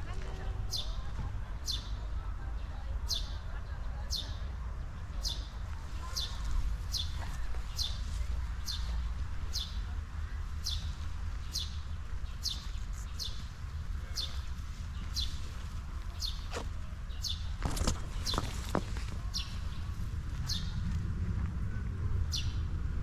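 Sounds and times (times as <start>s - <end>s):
low rumble: 17.5s - 23.0s.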